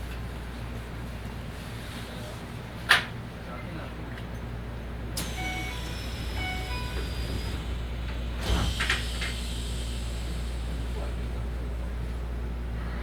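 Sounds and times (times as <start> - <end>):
low train equipment hum: 0.0 - 13.0
two-note door chime: 5.4 - 7.1.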